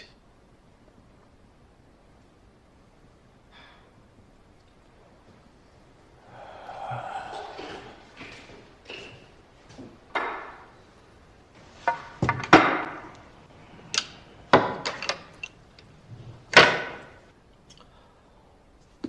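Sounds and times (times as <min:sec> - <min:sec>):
billiard balls clacking: 0:11.7 - 0:13.3, 0:14.0 - 0:17.2.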